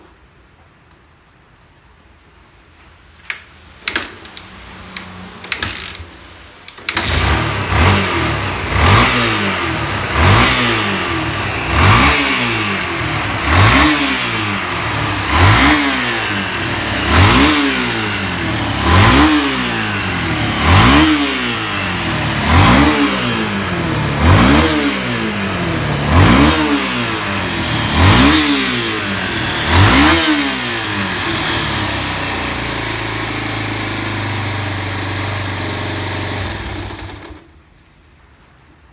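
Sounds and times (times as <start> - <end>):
clicks and knocks: 3.2 - 7.1
motorcycle engine revving: 4.0 - 37.5.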